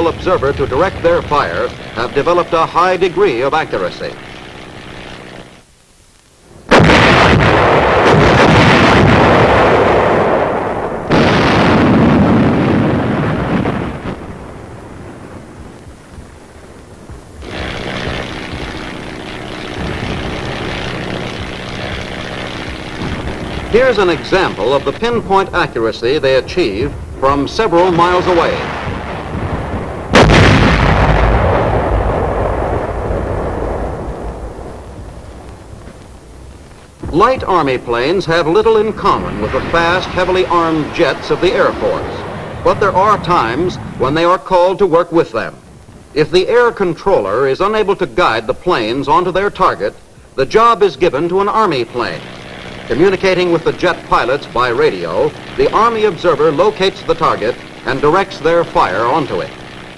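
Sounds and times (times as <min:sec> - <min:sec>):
artillery blasts rumbling: 0:00.0 - 0:04.1, 0:06.6 - 0:47.5.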